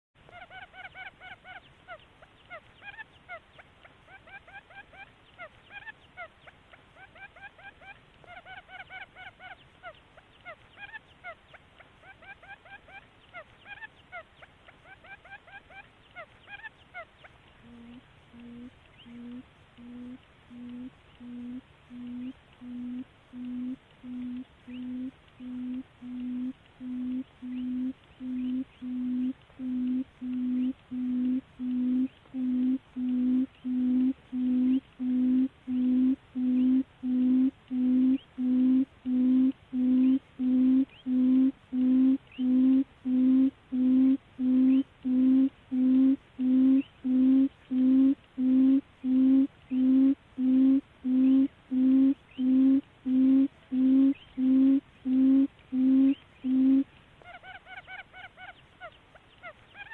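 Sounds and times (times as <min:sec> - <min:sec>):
low hooting bird call: 0:14.8 - 0:59.9.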